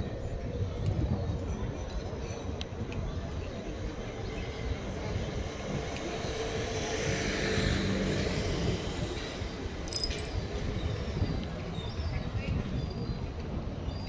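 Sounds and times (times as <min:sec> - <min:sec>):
brief high clink: 0:09.9 - 0:10.4.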